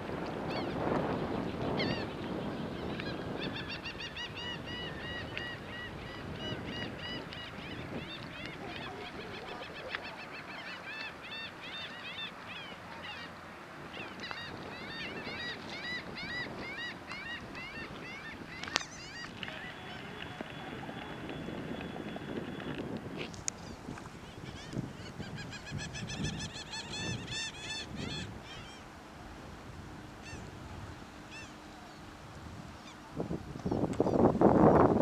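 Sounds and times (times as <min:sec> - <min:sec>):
flock of birds calling: 0:01.7 - 0:21.2, 0:23.6 - 0:28.9, 0:30.2 - 0:30.5, 0:31.2 - 0:32.1.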